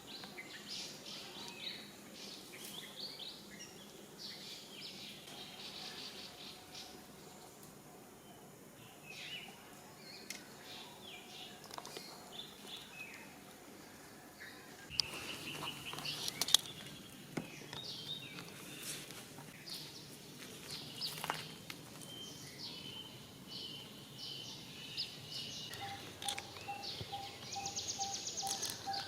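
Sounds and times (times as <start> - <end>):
birds chirping and calling: 8.8 - 20.0, 20.7 - 29.0.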